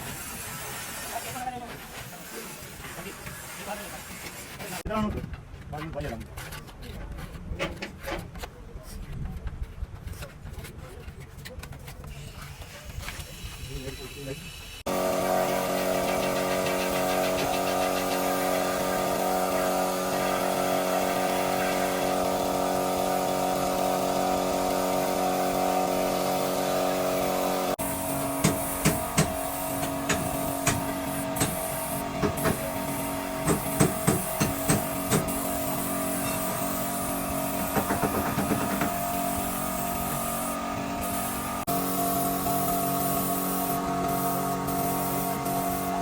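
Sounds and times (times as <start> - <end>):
steady mechanical hum: 9.1 - 46.0
sharp knocks: 33.4 - 35.3, 37.6 - 39.0.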